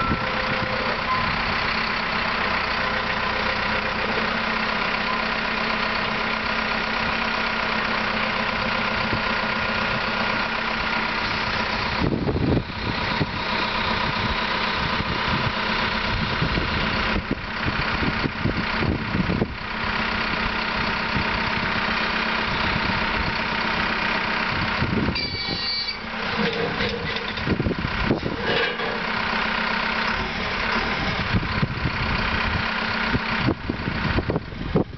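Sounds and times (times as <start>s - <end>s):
diesel engine running: 0.0s - 34.9s
clunks: 25.1s - 31.7s
high squeal: 25.2s - 26.1s.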